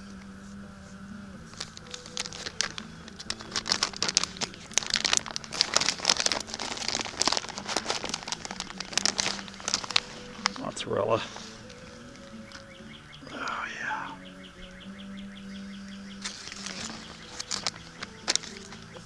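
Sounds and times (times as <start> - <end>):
plastic bag crinkling: 0.0 - 13.6, 16.1 - 19.0
steady low hum: 0.0 - 19.0.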